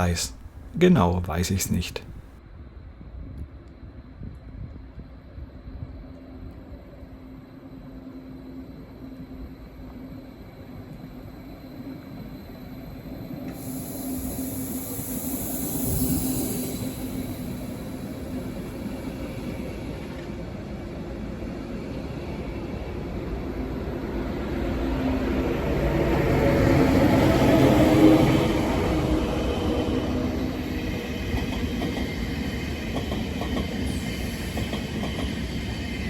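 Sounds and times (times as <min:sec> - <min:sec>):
train rumbling on tracks: 0:12.1 - 0:36.0.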